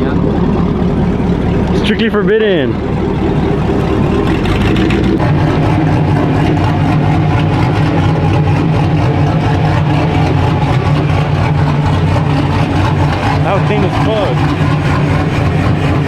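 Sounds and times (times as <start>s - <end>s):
truck engine running loudly: 0.0s - 16.0s.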